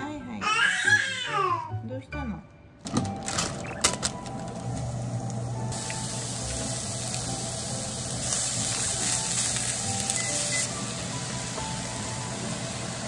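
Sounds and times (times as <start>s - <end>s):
food sizzling in a frying pan: 4.7s - 13.0s.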